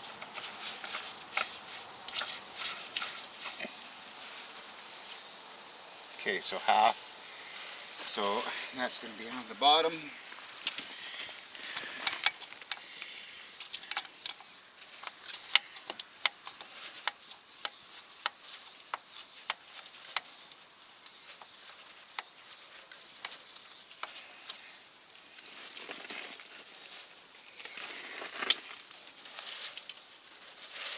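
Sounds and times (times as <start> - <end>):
sharp clicks of hand work: 11.7 - 20.3.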